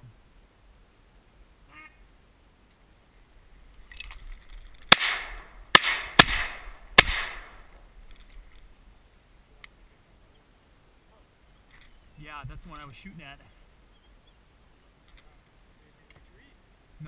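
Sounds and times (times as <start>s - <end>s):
shotgun shots with echo: 4.9s - 7.7s.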